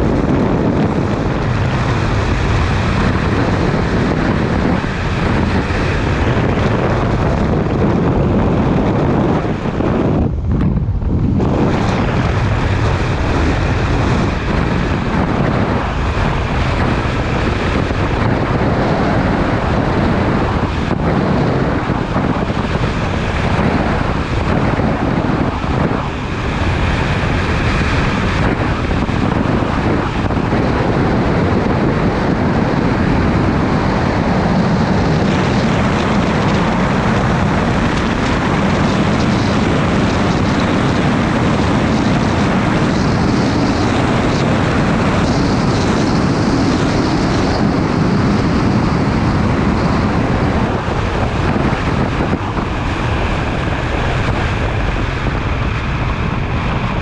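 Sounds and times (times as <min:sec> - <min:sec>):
motorcycle engine cruising: 0:00.0 - 0:57.0
wind buffeting microphone: 0:00.0 - 0:57.0.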